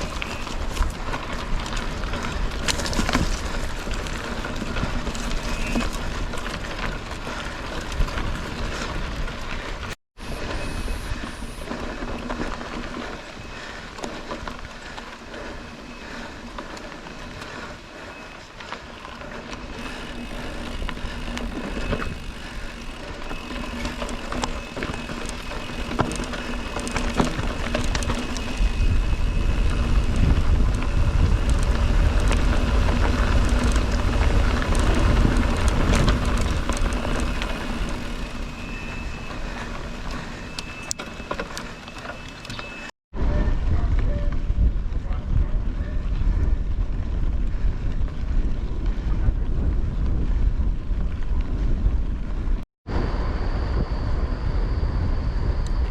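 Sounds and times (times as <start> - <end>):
bike clicks and rattles: 0.0 - 42.9
bike tyre noise: 0.0 - 55.9
wind buffeting microphone: 19.7 - 41.0, 43.1 - 55.9.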